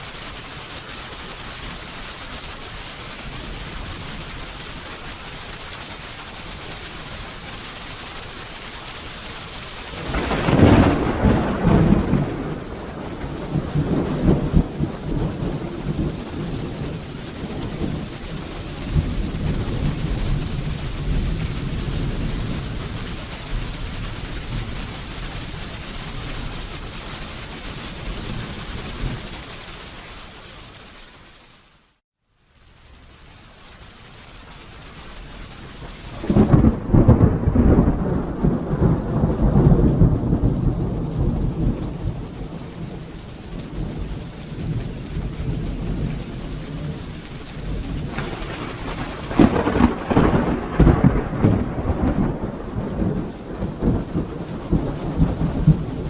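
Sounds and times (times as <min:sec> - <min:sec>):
steady rain falling: 0:00.0 - 0:56.0
thunder rumbling: 0:09.8 - 0:29.4, 0:36.0 - 0:56.0.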